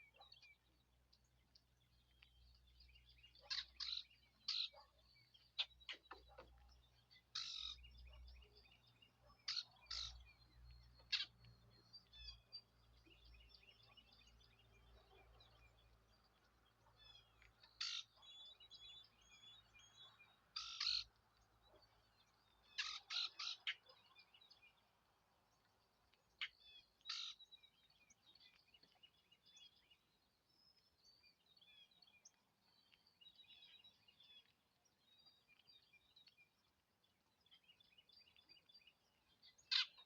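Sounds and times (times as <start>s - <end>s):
small high bird chirps: 0.0s - 24.9s, 37.4s - 40.0s.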